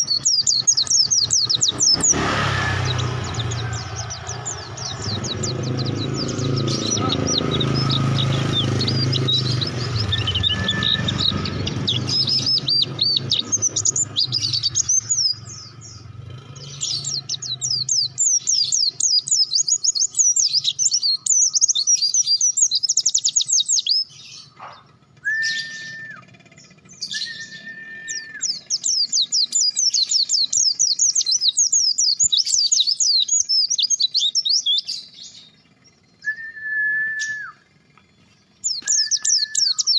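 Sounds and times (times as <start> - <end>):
bird twittering song: 0.0 - 39.9
short whistled notes: 25.2 - 26.2, 36.2 - 37.6.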